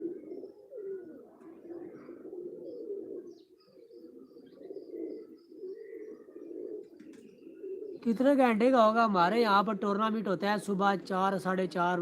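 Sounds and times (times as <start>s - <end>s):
pigeons cooing: 0.0s - 8.3s
small birds chirping: 0.0s - 11.7s.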